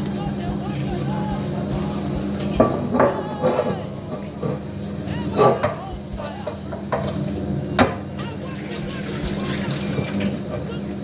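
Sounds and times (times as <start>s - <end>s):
steady low hum: 0.0s - 11.0s
utensil knocking against a pot: 2.2s - 10.4s.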